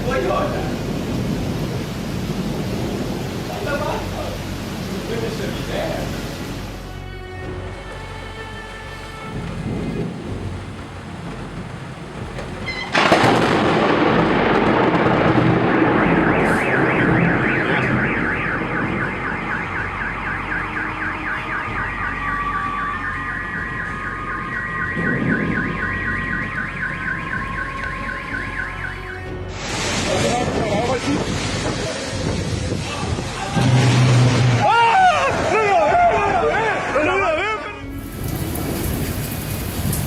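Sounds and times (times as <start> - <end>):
loud thunderclap rumbling: 0.0 - 6.4, 9.3 - 28.3, 29.6 - 36.9, 38.0 - 40.0
car alarm warbling: 15.6 - 29.4.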